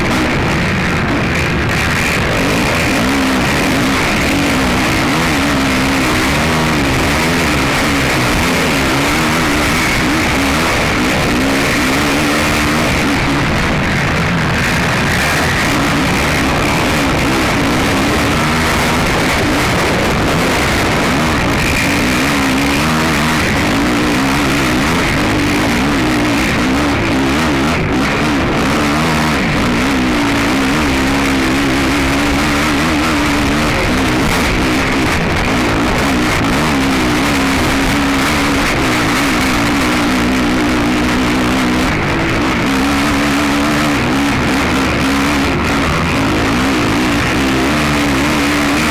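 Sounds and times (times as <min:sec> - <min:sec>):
atv engine revving: 0:00.0 - 0:48.9
rushing noise: 0:00.0 - 0:48.9.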